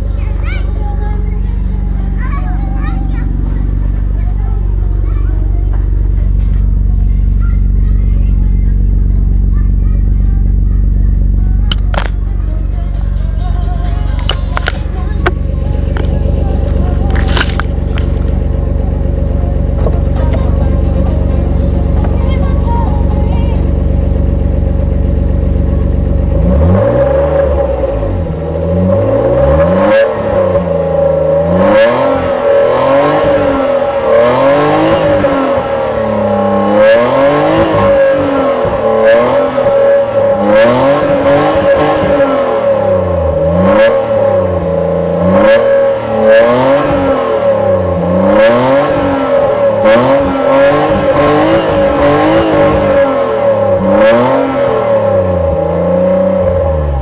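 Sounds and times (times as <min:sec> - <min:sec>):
steady whine: 0:00.0 - 0:29.2
car engine revving: 0:00.0 - 0:57.0.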